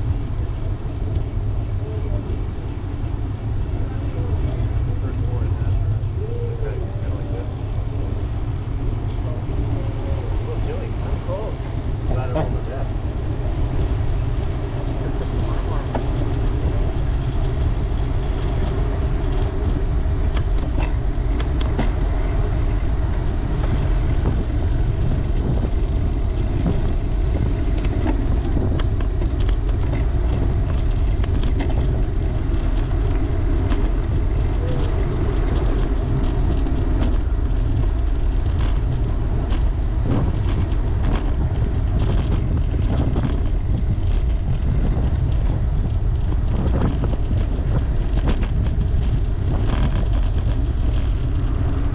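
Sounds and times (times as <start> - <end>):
wind buffeting microphone: 0.0 - 51.9
light clicks and rattles: 26.4 - 51.1.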